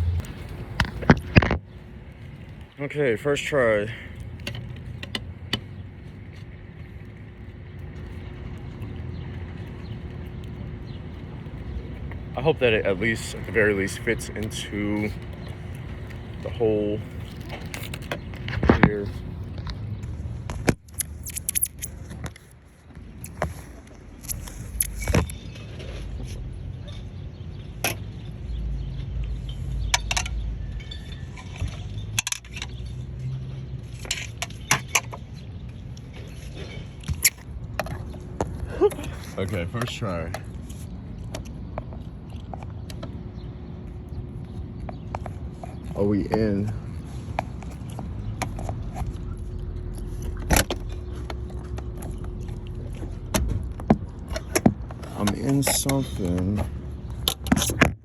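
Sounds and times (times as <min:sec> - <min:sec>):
low rumble: 0:00.0 - 0:02.6
steady low rumble: 0:00.0 - 0:26.8, 0:35.3 - 0:58.0.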